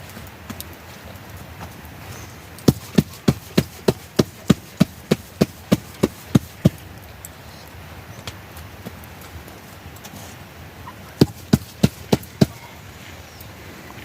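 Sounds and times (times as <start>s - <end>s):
sharp knocks with low thud: 11.2s - 12.6s.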